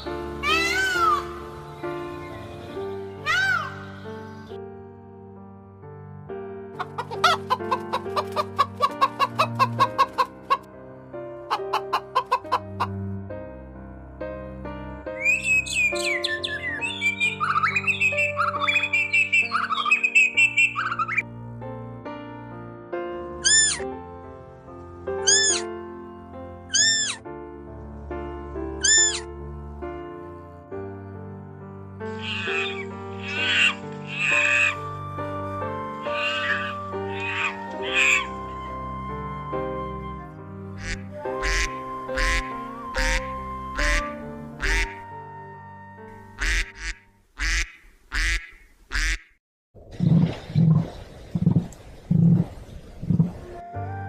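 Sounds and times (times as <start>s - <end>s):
background music: 0.0s - 47.6s, 53.2s - 54.0s
duck quacking: 25.3s - 25.6s, 32.2s - 34.8s, 40.8s - 44.0s, 44.6s - 45.0s, 46.4s - 49.4s.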